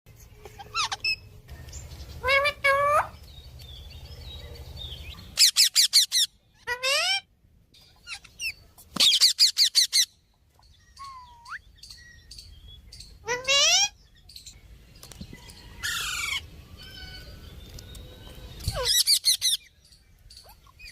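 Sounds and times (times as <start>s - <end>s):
sharp chirps and squeaks: 0.2s - 6.3s, 7.8s - 16.0s, 17.2s - 20.9s
parrot squawks: 0.6s - 1.3s, 5.4s - 7.3s, 13.2s - 14.0s.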